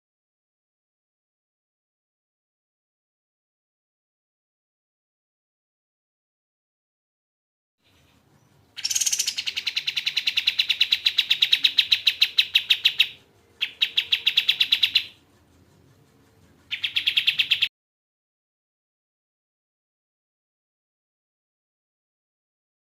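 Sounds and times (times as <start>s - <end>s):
songbird trilling: 7.9s - 15.2s, 16.7s - 17.7s.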